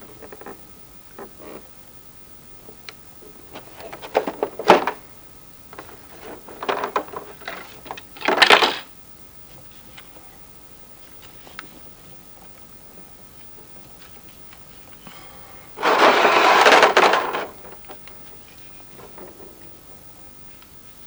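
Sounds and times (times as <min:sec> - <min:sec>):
plastic clicking and crinkling: 0:02.7 - 0:05.1, 0:05.7 - 0:08.9, 0:15.8 - 0:20.8.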